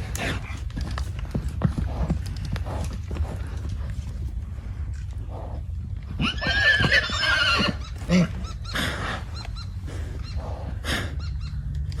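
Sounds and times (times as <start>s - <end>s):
short low horse sound: 0.0s - 6.1s
horse neighing: 6.2s - 9.6s.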